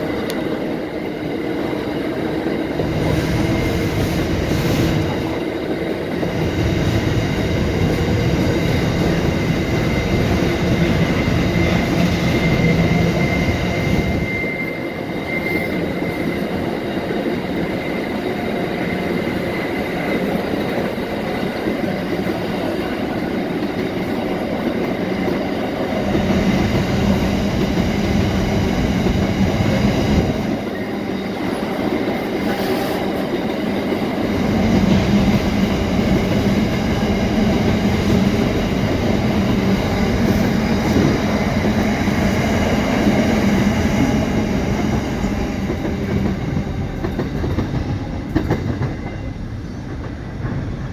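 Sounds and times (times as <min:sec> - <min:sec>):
train wagons rumbling on rails: 0:00.0 - 0:50.9
high wheel squeal: 0:12.1 - 0:16.5.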